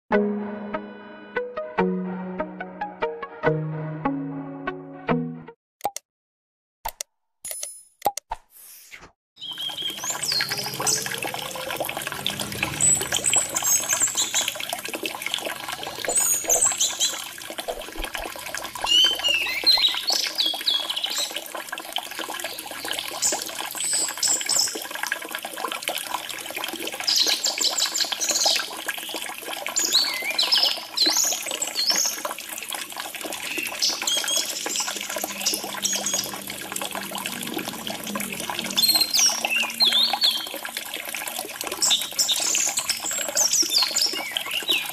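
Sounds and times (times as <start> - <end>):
water trickling: 9.4 - 44.9.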